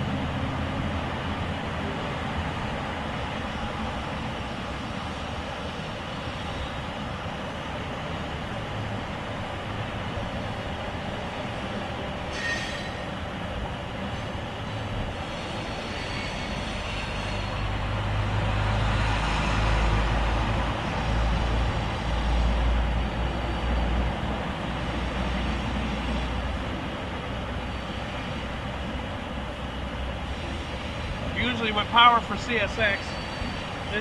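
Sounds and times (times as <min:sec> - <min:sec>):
heavy vehicle rumble: 0:00.0 - 0:34.0.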